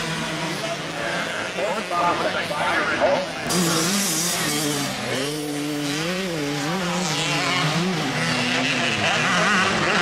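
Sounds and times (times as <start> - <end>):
motocross bikes revving: 0.0 - 10.0.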